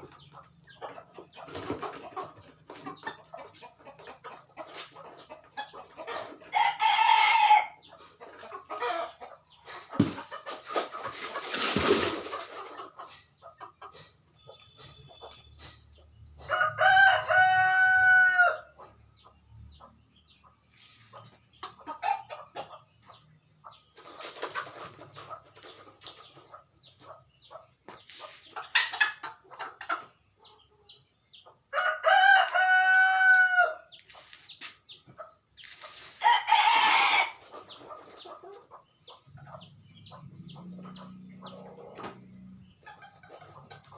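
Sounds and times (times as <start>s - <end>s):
rooster crowing: 16.5s - 18.7s, 31.8s - 33.8s
rough chicken calls: 35.6s - 38.6s.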